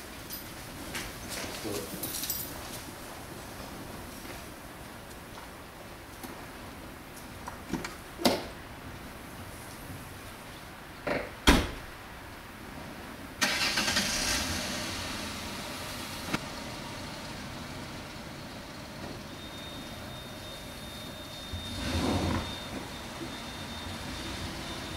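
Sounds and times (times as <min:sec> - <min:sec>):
vehicle door thump: 0:11.1 - 0:11.9
truck engine starting and idling: 0:13.4 - 0:24.9.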